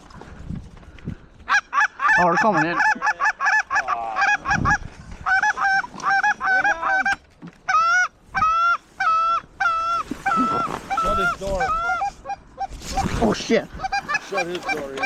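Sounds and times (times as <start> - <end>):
geese honking: 1.5 - 15.0.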